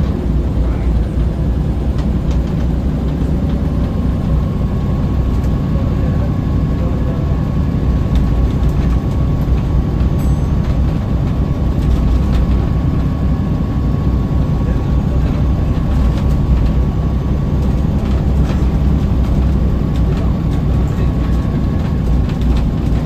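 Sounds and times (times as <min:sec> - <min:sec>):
bus diesel engine drone: 0:00.0 - 0:23.0.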